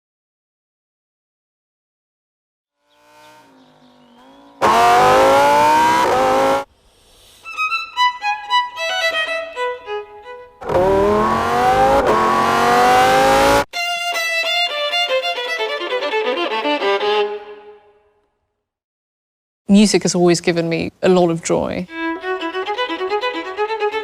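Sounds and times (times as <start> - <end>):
car engine revving: 2.8 - 6.7, 10.6 - 13.7
solo violin: 7.4 - 10.7, 13.7 - 18.0, 21.9 - 24.0.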